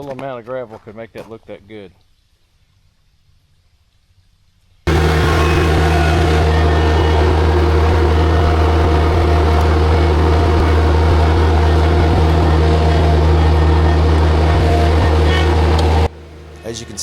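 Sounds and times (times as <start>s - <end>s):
diesel engine droning: 4.9s - 17.0s.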